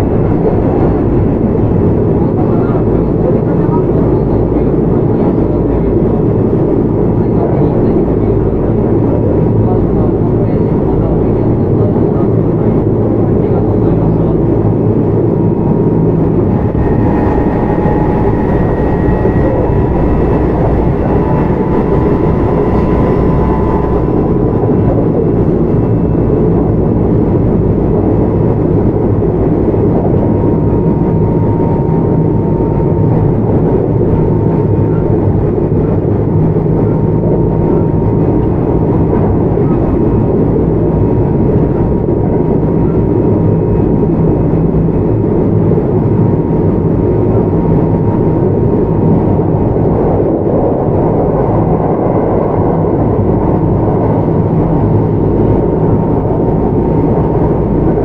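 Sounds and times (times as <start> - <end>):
train wheels rumbling on track: 6.2 - 43.8
thin electric whine: 13.7 - 40.0.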